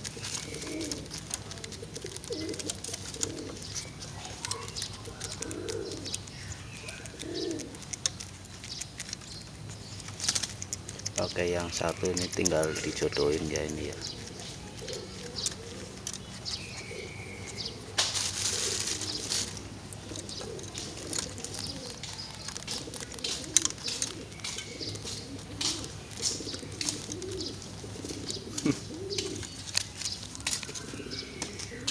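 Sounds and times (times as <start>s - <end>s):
wings flapping: 0.0s - 6.1s, 17.9s - 30.8s
sharp clicks: 0.0s - 18.2s
pigeons cooing: 0.0s - 31.9s.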